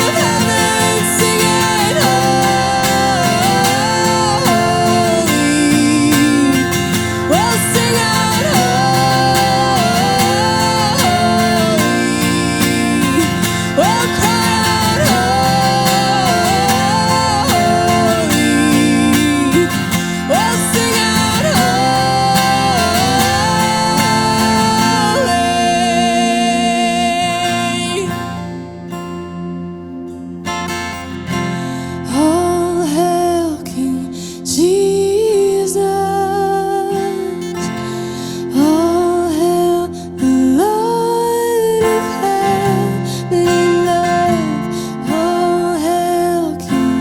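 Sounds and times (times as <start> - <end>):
sliding lead melody: 0.0 - 28.9
strummed acoustic guitar chords: 0.0 - 47.0.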